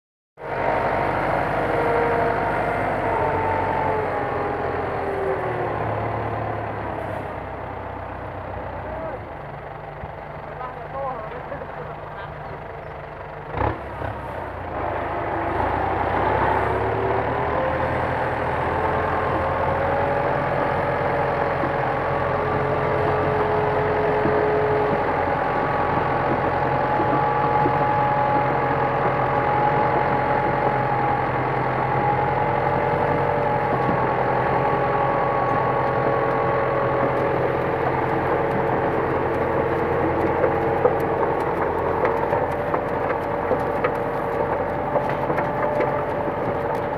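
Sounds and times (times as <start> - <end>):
tractor diesel engine running: 0.4 - 46.9.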